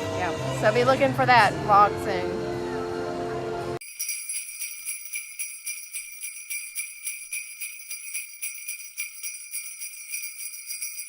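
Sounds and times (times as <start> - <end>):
sleigh bells jingling: 3.8 - 11.0.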